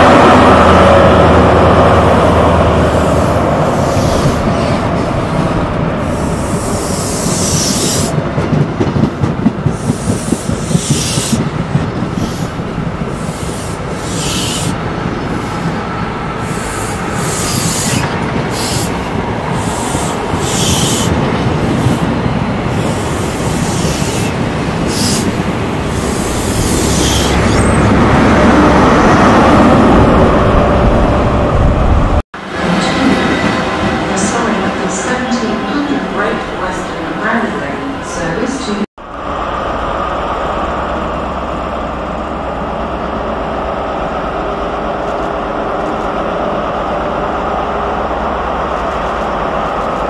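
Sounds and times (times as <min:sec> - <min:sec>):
diesel locomotive passing: 0:00.0 - 0:50.0
train wheels clacking over rail joints: 0:06.4 - 0:14.8.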